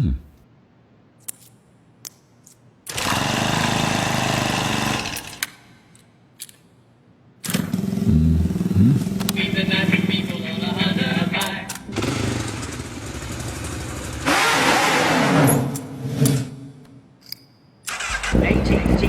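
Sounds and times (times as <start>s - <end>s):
engine running loudly: 7.8s - 14.5s.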